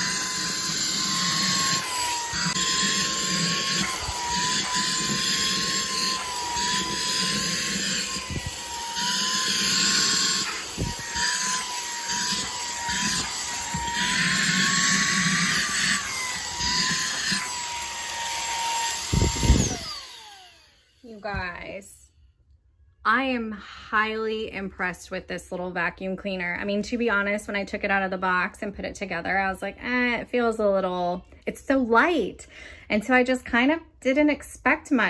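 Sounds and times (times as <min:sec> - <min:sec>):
handheld vacuum motor whine: 0:00.0 - 0:21.7.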